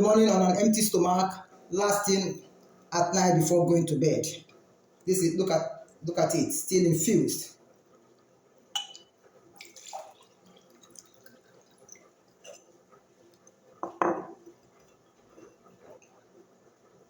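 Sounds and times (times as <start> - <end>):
glass clicking and knocking: 8.8 - 9.1, 13.8 - 14.5.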